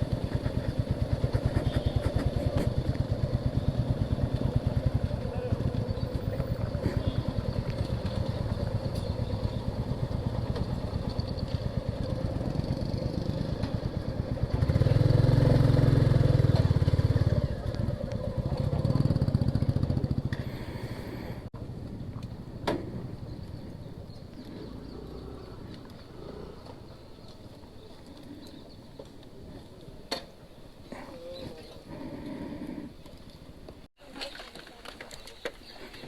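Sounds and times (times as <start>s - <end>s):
motorcycle engine running: 0.0s - 21.5s.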